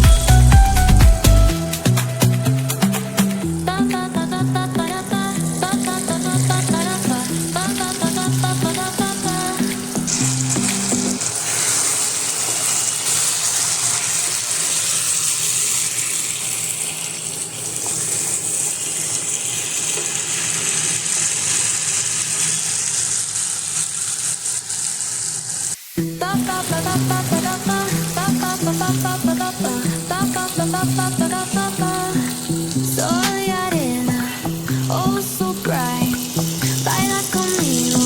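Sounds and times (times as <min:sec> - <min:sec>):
background music: 0:00.0 - 0:11.2, 0:26.0 - 0:38.0
food sizzling in a pan: 0:01.8 - 0:38.0.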